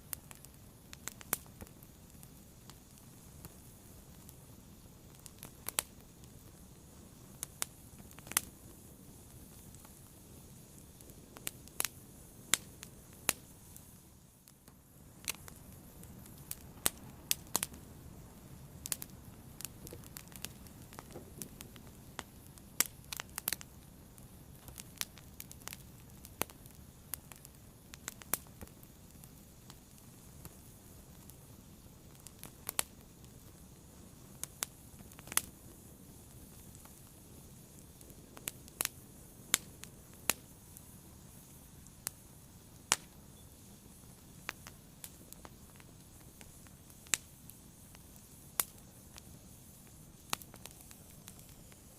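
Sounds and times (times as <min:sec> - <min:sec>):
wood fire crackling: 0:00.0 - 0:51.9
low rush of flame: 0:00.1 - 0:51.9.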